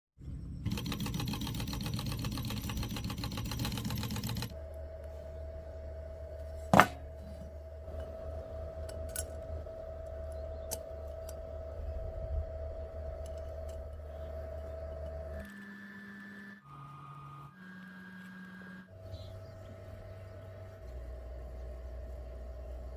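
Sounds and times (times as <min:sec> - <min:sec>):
low hum: 0:00.2 - 0:22.9
steady whine: 0:00.2 - 0:22.9
small motor mechanism clattering: 0:00.6 - 0:04.6, 0:12.8 - 0:19.7.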